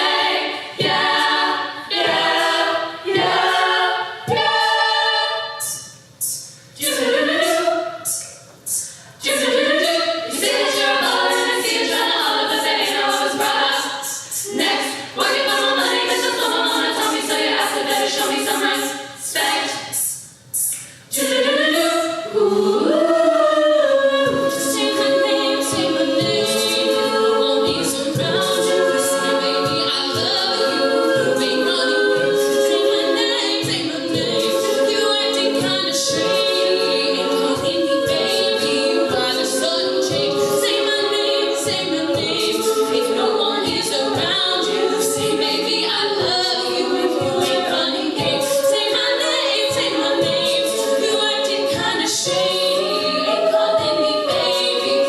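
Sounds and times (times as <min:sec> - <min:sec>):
a cappella group singing: 0:00.0 - 0:55.0.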